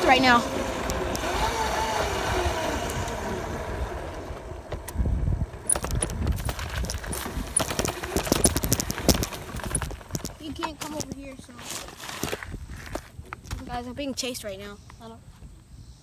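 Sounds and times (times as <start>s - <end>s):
motorcycle engine running: 0.0s - 11.2s
rumble: 4.5s - 10.4s
sharp knocks and rattles: 5.4s - 11.3s.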